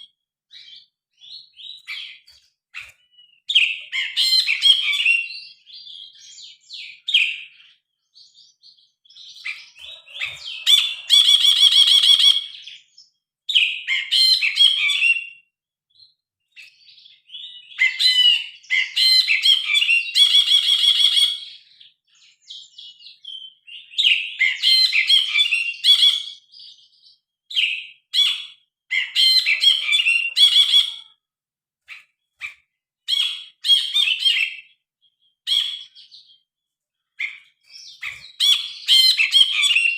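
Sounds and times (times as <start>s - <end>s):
bird chattering song: 0.0s - 15.4s, 37.1s - 39.9s.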